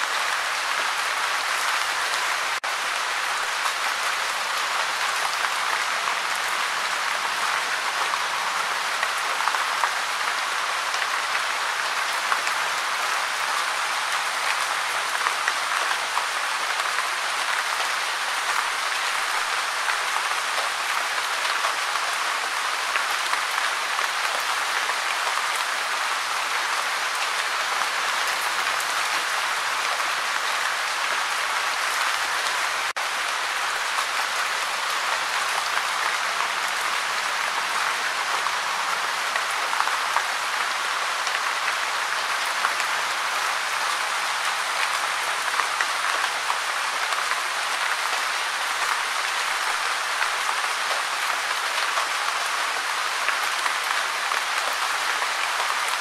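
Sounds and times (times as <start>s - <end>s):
gentle rain patter: 0.0s - 56.0s.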